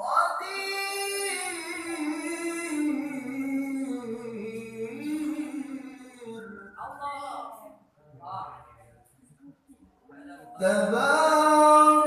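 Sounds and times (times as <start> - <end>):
person reciting melodically: 0.0 - 6.9, 10.3 - 12.0.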